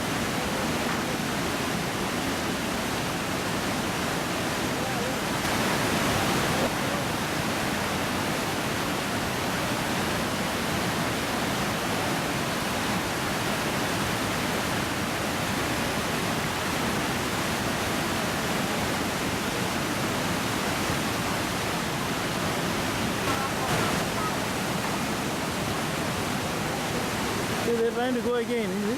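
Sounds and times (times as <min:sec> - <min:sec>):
waterfall roaring: 0:00.0 - 0:28.9.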